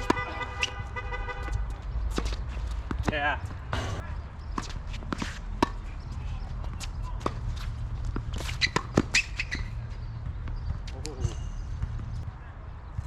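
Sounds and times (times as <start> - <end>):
tennis ball hits and bounces: 1.5 - 6.0, 6.6 - 12.2
steady low rumble: 3.5 - 4.5.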